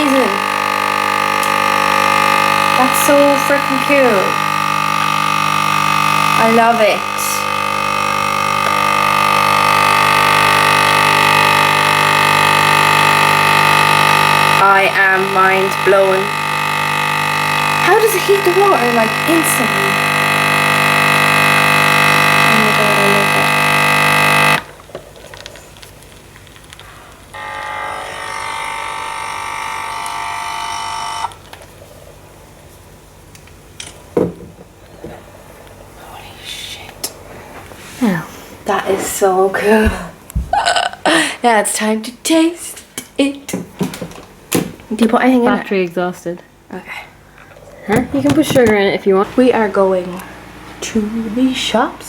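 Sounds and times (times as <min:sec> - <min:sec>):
coffee machine pump buzzing: 0:00.0 - 0:25.2, 0:27.0 - 0:32.2, 0:47.9 - 0:52.0.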